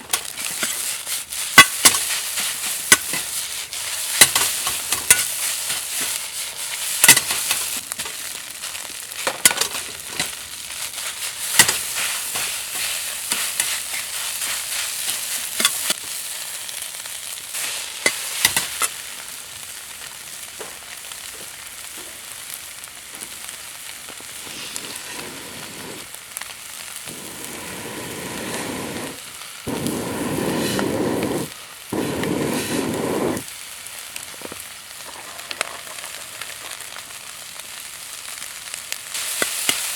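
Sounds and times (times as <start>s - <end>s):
spatula scraping a wok: 0.0s - 16.5s, 17.6s - 19.2s, 24.2s - 26.1s, 27.0s - 33.4s
rice sizzling in a wok: 0.0s - 39.9s.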